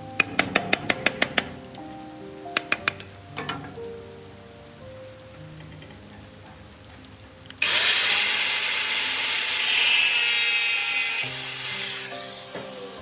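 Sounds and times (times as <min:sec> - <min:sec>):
background music: 0:00.0 - 0:13.0
power tool high-pitched whine: 0:07.6 - 0:13.0.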